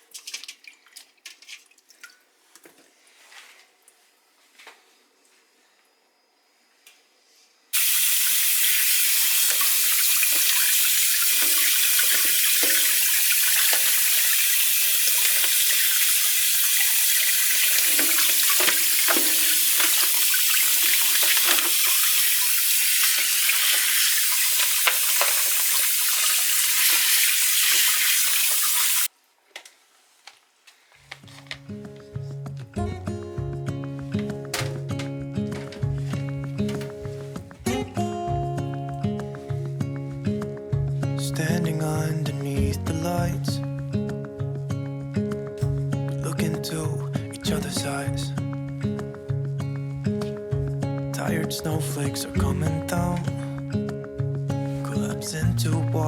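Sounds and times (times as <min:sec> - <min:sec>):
kitchen tap running: 0:07.8 - 0:29.1, 0:33.9 - 0:37.4, 0:51.8 - 0:54.5.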